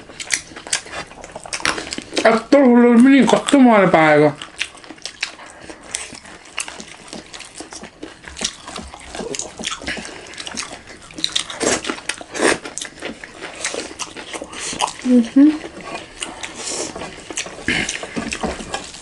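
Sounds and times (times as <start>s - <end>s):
wet chewing: 0.0s - 19.0s
lip smacks: 4.4s - 19.0s.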